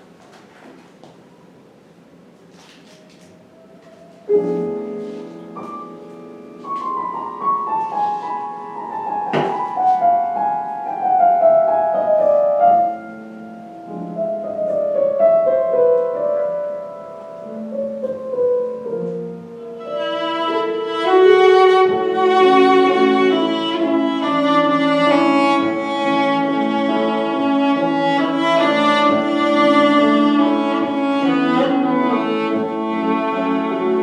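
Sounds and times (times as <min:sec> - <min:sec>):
piano accompaniment: 0:01.2 - 0:34.0
bowed string melody: 0:19.2 - 0:34.0.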